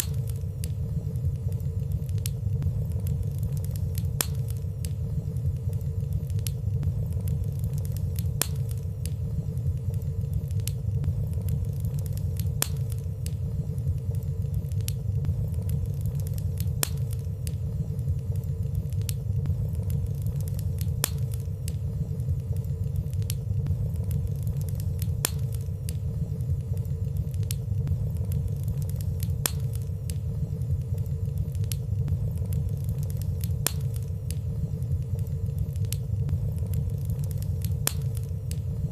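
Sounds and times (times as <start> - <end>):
fireplace fire crackling: 0.0 - 38.9.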